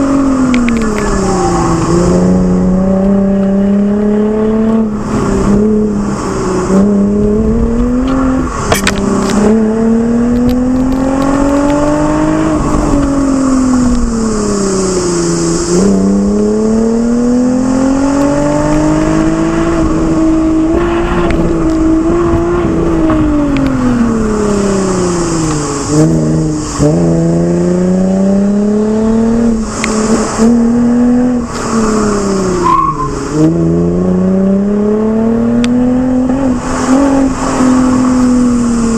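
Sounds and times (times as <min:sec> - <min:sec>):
car engine revving through gears: 0:00.0 - 0:38.9.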